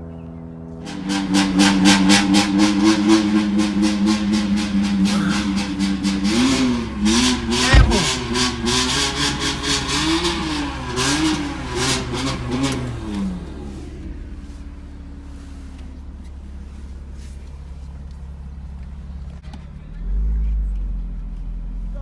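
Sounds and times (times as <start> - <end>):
car engine revving: 1.1 - 12.9
exhaust pops and bang: 7.6 - 8.3.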